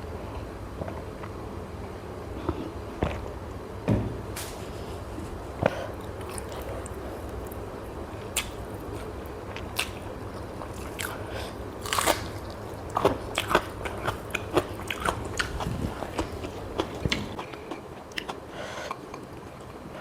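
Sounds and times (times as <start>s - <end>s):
low steady hum: 0.0s - 20.0s
chewing food: 6.0s - 19.8s.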